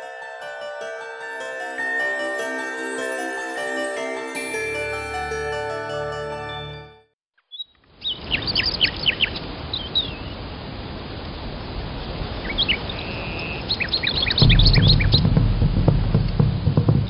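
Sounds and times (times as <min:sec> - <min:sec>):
small birds chirping: 0:07.4 - 0:10.4, 0:12.4 - 0:15.2
outdoor ambience hiss: 0:07.8 - 0:14.0
bird trill: 0:12.5 - 0:15.3.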